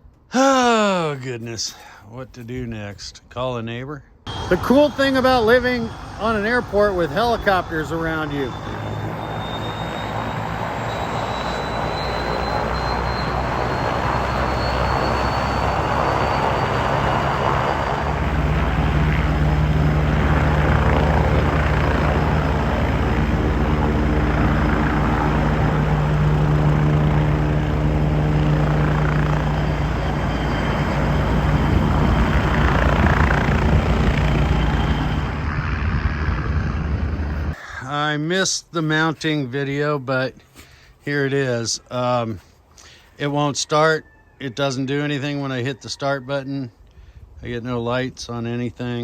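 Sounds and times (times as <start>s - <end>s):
helicopter rotor drone: 4.3s - 37.6s
helicopter turbine whine: 4.3s - 37.8s.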